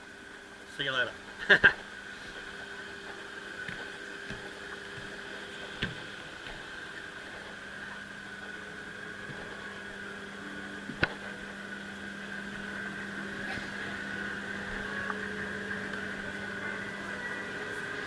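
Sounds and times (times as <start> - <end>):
boat engine idling: 0.0 - 18.0.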